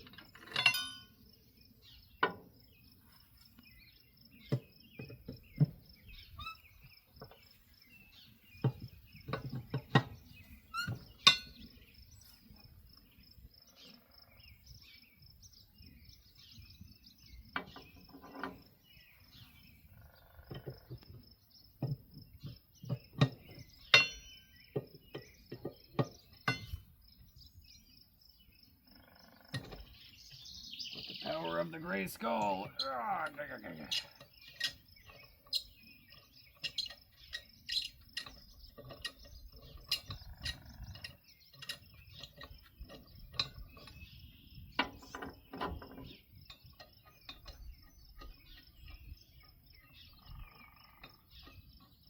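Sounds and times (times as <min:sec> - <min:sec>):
lug wrench clinking on nuts: 0:00.0 - 0:01.2, 0:10.8 - 0:11.6, 0:23.2 - 0:25.3, 0:26.0 - 0:26.9, 0:33.9 - 0:35.7
cricket chirping trill: 0:00.0 - 0:52.0.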